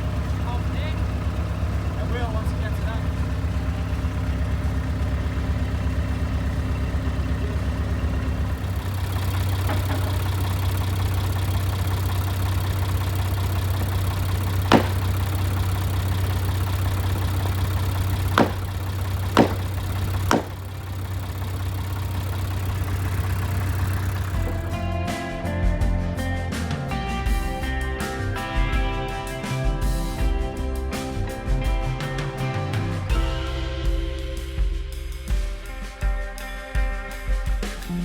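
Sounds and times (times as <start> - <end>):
heavy machine engine running: 0.0 - 35.2
sharp knocks: 13.8 - 15.5, 17.2 - 20.9.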